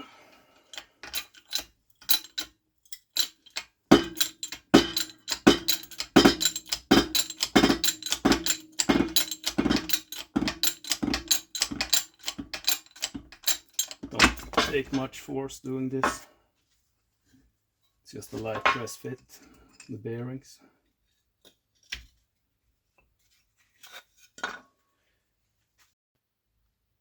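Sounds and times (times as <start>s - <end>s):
press metallic ratchet clicking: 0.7s - 14.5s.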